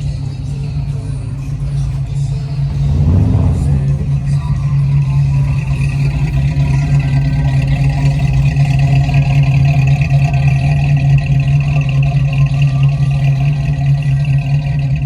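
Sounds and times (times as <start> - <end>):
engine running at steady speed: 0.0 - 15.0.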